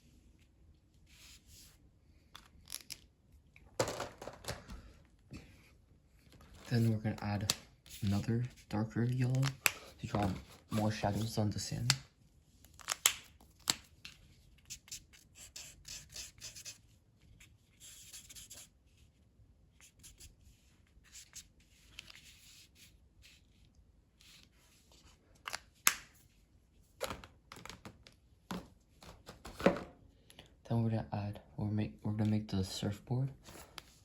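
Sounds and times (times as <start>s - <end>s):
colouring tool rubbing on paper: 14.8s - 16.9s.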